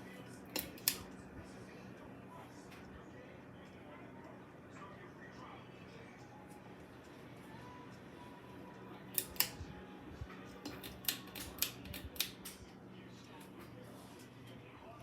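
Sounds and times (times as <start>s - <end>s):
ceiling fan humming: 0.0s - 15.0s
sharp irregular clicks: 0.5s - 1.1s, 9.2s - 9.5s, 10.6s - 12.6s.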